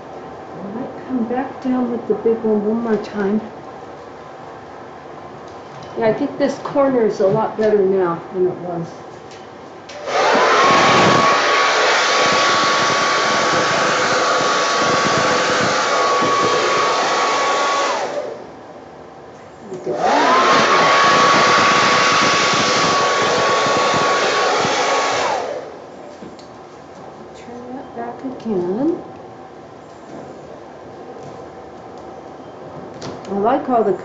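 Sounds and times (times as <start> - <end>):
hair dryer motor whining: 9.9 - 18.5, 19.8 - 25.8.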